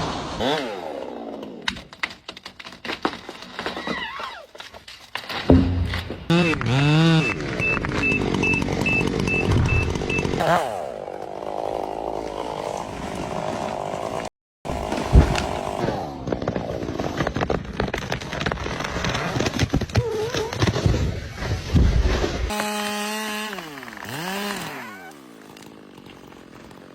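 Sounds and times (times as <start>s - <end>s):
chainsaw cutting wood: 0.0s - 3.8s, 5.2s - 26.9s
short beeps: 7.2s - 10.3s.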